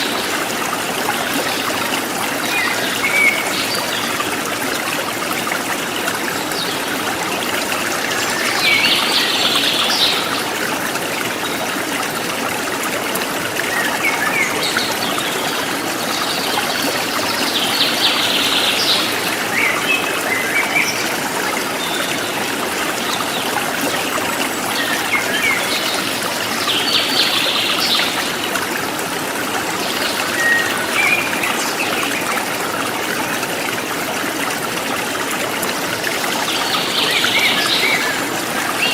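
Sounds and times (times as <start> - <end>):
water flowing over rocks: 0.0 - 38.9.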